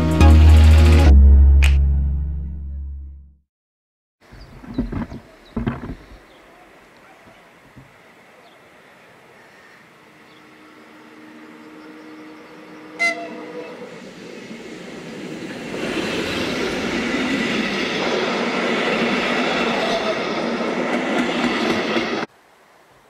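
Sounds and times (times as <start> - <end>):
coaches rumbling with wheel clatter: 4.3 - 6.3
electric locomotive approaching: 10.0 - 22.3
train horn blast: 10.5 - 13.9.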